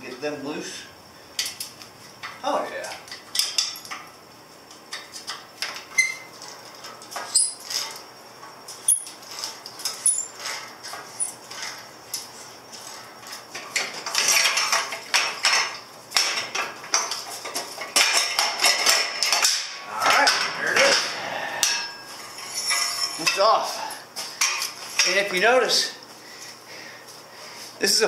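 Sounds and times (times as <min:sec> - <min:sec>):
wrenches clinking on metal: 0:02.2 - 0:04.0, 0:08.7 - 0:21.0, 0:21.6 - 0:25.4.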